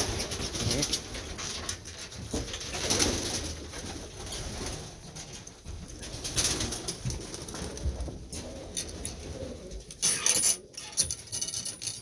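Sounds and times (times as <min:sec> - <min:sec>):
pigeons cooing: 0:07.0 - 0:11.0.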